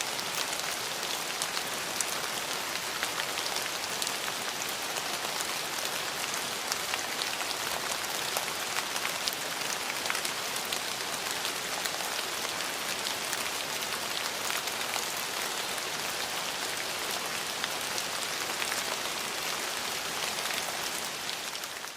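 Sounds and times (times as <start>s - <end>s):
raindrops ticking: 0.0s - 2.9s, 11.5s - 15.9s, 18.7s - 21.9s
steady rain falling: 0.0s - 21.9s.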